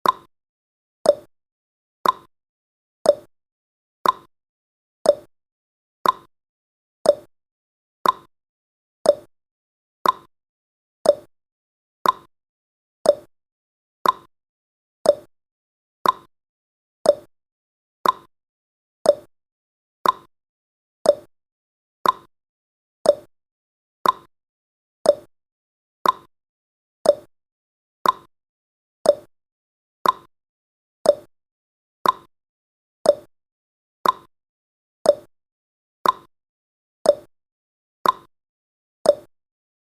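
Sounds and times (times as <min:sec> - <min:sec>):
timer clock ticking: 0:00.0 - 0:00.3, 0:01.1 - 0:01.3, 0:02.0 - 0:02.3, 0:03.1 - 0:03.3, 0:04.0 - 0:04.3, 0:05.1 - 0:05.3, 0:06.0 - 0:06.3, 0:07.1 - 0:07.3, 0:08.0 - 0:08.3, 0:09.1 - 0:09.3, 0:10.0 - 0:10.3, 0:11.1 - 0:11.3, 0:12.0 - 0:12.3, 0:13.1 - 0:13.3, 0:14.0 - 0:14.3, 0:15.1 - 0:15.3, 0:16.0 - 0:16.3, 0:17.1 - 0:17.3, 0:18.0 - 0:18.3, 0:19.1 - 0:19.3, 0:20.0 - 0:20.3, 0:21.0 - 0:21.3, 0:22.0 - 0:22.3, 0:23.0 - 0:23.3, 0:24.0 - 0:24.3, 0:25.0 - 0:25.3, 0:26.0 - 0:26.3, 0:27.0 - 0:27.3, 0:28.0 - 0:28.3, 0:29.1 - 0:29.3, 0:30.0 - 0:30.3, 0:31.1 - 0:31.3, 0:32.0 - 0:32.3, 0:33.1 - 0:33.3, 0:34.0 - 0:34.3, 0:35.1 - 0:35.3, 0:36.0 - 0:36.3, 0:37.1 - 0:37.3, 0:38.0 - 0:38.3, 0:39.1 - 0:39.3.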